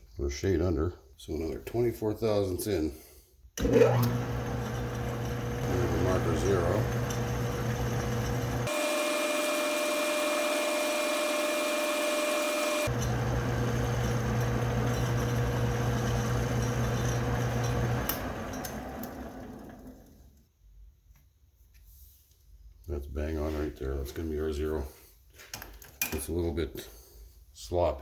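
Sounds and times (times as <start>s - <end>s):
metal lathe running: 3.6s - 20.0s.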